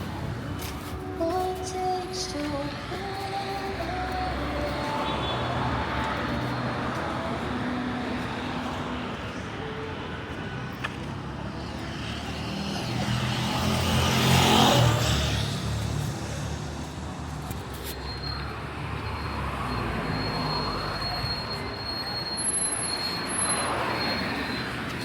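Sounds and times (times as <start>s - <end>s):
street traffic noise: 0.0s - 25.0s
motor vehicle passing close by: 12.0s - 16.6s.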